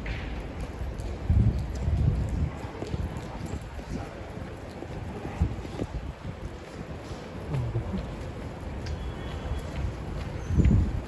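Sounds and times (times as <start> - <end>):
wind buffeting microphone: 0.0 - 11.0
steady outdoor hiss: 6.2 - 10.4.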